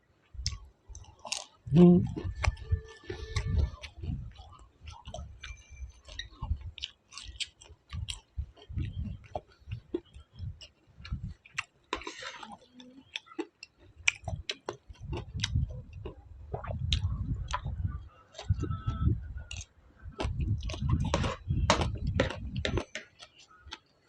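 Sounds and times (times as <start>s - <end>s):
chewing and crunching food: 0.0s - 24.0s
wet mouth clicks: 3.4s - 17.8s.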